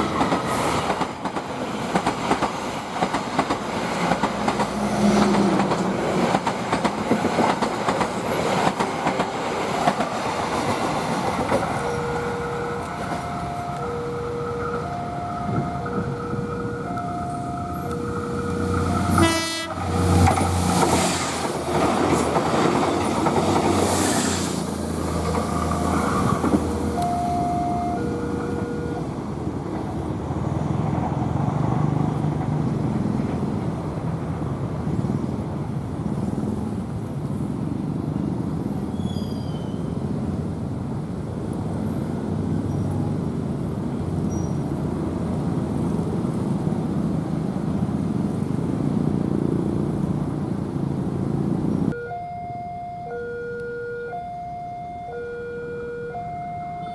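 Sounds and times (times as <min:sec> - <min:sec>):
train rolling on rails: 0:00.0 - 0:52.0
two-tone crossing chime: 0:11.8 - 0:19.3, 0:26.9 - 0:29.0
train horn blast: 0:12.9 - 0:20.7.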